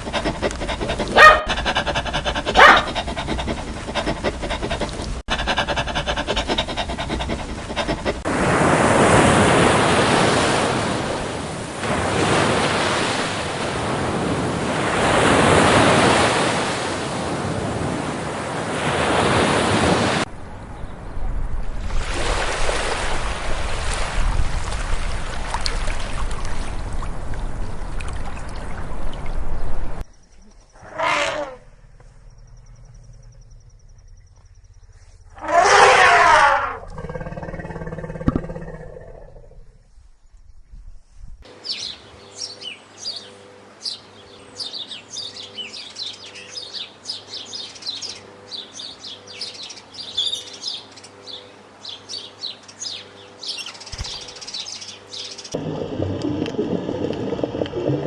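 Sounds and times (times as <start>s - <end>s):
ocean surf washing: 0.0s - 20.3s, 21.7s - 27.6s, 55.5s - 58.0s.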